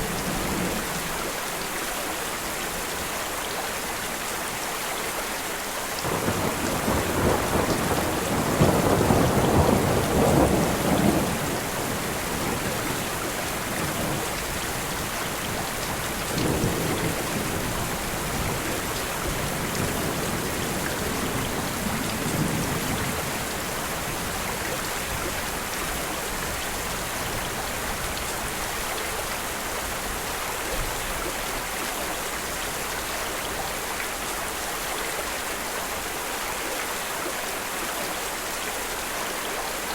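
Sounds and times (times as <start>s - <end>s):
steady rain: 0.0s - 39.9s
thunder rumbling: 6.0s - 24.5s.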